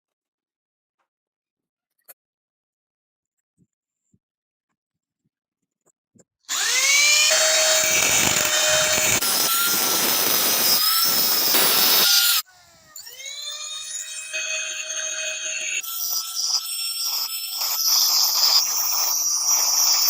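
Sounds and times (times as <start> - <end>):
power tool grinding: 6.5 - 12.4, 13.0 - 20.0.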